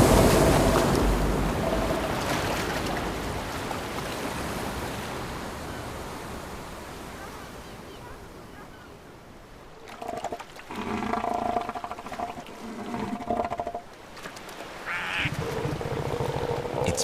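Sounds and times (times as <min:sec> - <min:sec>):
ocean wave breaking: 0:00.0 - 0:07.5, 0:12.0 - 0:17.0.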